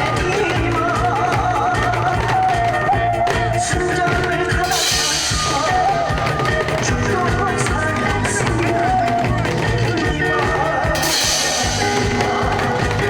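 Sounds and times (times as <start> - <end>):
band playing trot song: 0.0 - 13.0
drum kit beat: 0.0 - 13.0.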